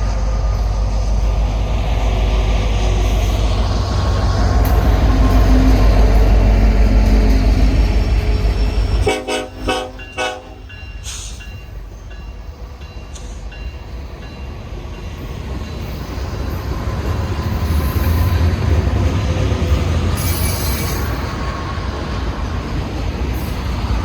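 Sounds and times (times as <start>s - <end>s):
diesel locomotive rumbling: 0.0s - 24.0s
train air horn blasts: 8.2s - 11.3s.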